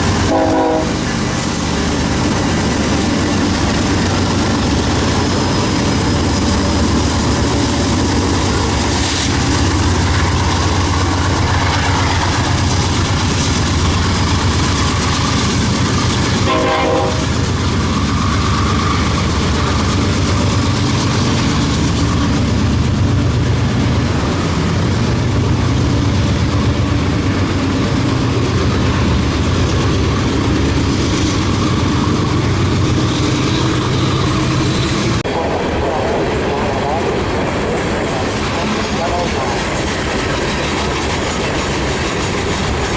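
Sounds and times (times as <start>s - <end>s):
locomotive engine rumble: 0.0s - 42.9s
train wheels on rails: 0.0s - 42.9s
train horn: 0.2s - 1.1s, 16.4s - 17.3s.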